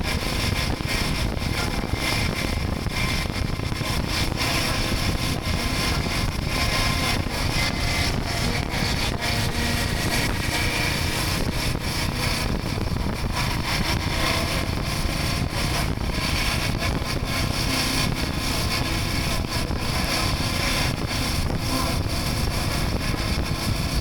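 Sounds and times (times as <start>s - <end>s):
motorcycle engine: 0.0s - 24.0s
wind buffeting microphone: 0.0s - 24.0s.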